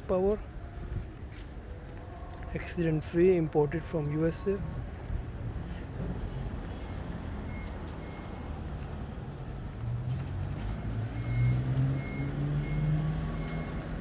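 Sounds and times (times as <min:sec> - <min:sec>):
vehicle engine humming: 0:05.0 - 0:14.0.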